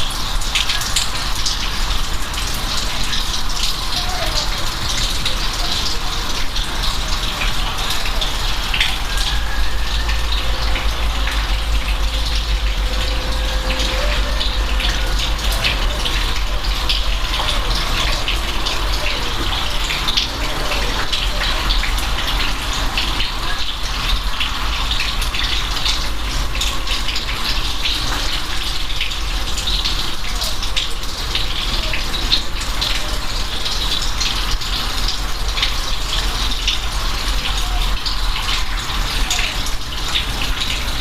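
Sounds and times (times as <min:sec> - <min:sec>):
rain falling: 0:00.0 - 0:41.0
deep rumble: 0:08.6 - 0:19.0.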